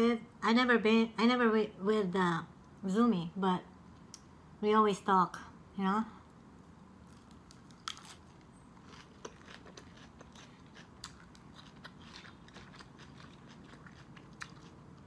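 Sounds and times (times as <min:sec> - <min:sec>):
crunchy chewing of lettuce: 0:07.0 - 0:15.0.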